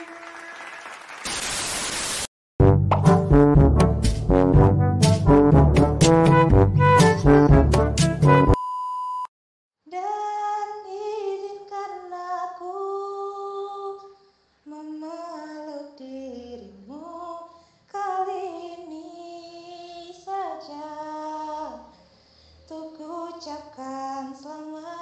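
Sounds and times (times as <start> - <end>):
woman singing unaccompanied: 9.9 - 14.1, 14.7 - 21.9, 22.7 - 25.0.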